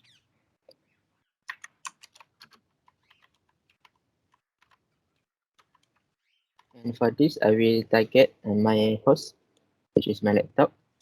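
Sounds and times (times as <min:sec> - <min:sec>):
typing on computer keyboard: 0:01.5 - 0:04.8, 0:05.6 - 0:06.0.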